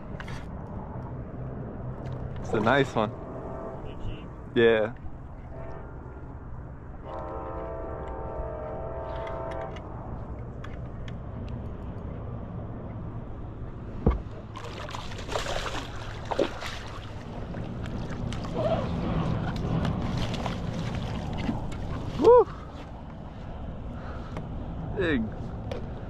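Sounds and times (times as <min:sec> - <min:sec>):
steady horn-like tone: 0:02.8 - 0:04.4, 0:05.4 - 0:09.9
water splashing: 0:14.2 - 0:22.9.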